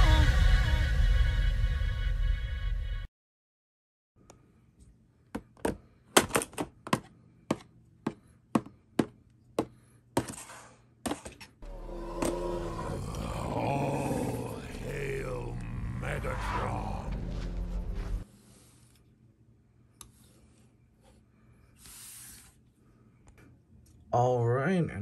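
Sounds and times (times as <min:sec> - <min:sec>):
music: 0:00.0 - 0:03.1, 0:11.6 - 0:13.0, 0:16.4 - 0:18.2.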